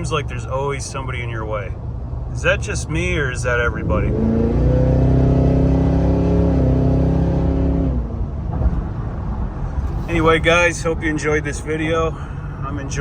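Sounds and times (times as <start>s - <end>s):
car engine accelerating hard: 3.7s - 10.8s.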